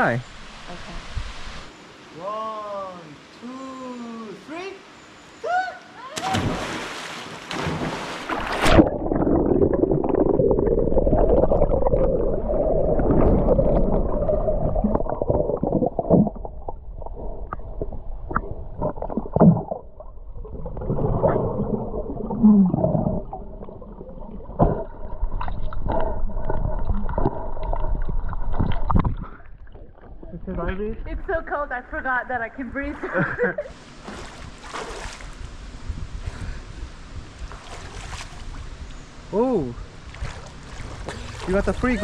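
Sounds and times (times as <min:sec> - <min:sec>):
people splashing into water: 0:06.2 - 0:16.5, 0:40.1 - 0:42.0
underwater gurgling and bubbling: 0:08.6 - 0:30.3.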